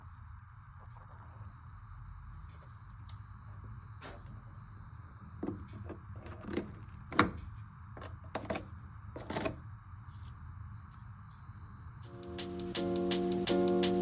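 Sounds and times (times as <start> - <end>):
knocks and clatters of handling: 5.4 - 9.6.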